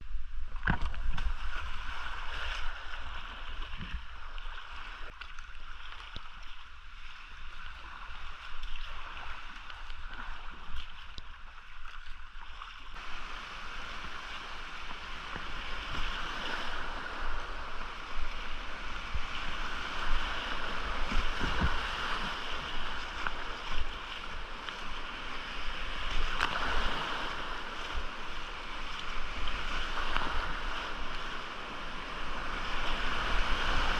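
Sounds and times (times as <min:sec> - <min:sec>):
creek whitewater rushing: 0:13.0 - 0:28.8.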